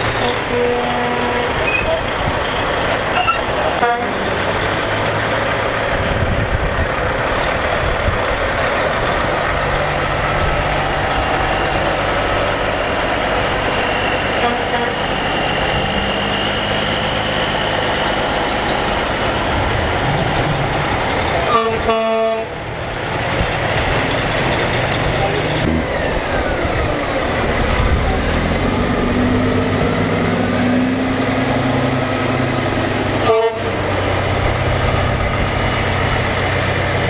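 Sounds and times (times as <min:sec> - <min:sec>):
truck air horn: 0:00.0 - 0:02.1, 0:03.2 - 0:04.4, 0:13.1 - 0:16.4, 0:21.5 - 0:22.6, 0:33.2 - 0:34.0
heavy trucks driving past: 0:00.0 - 0:37.0.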